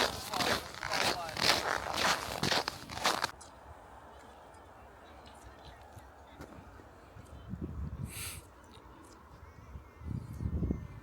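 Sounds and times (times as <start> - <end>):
footsteps crunching in snow: 0.0 - 3.4.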